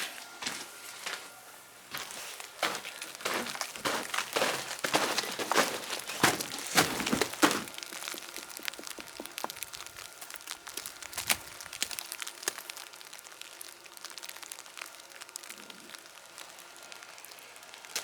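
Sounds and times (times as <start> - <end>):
sleet ticking on ground: 1.9 - 16.6.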